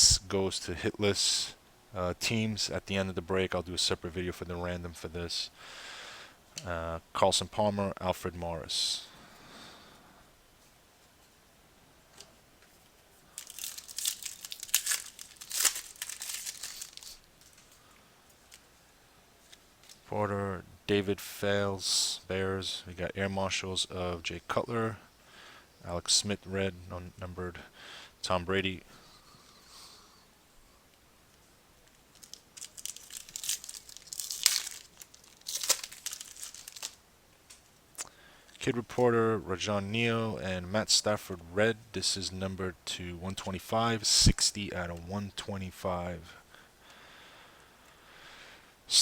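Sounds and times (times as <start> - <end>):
foil wrapper tearing and crinkling: 13.3 - 17.7, 32.1 - 37.0.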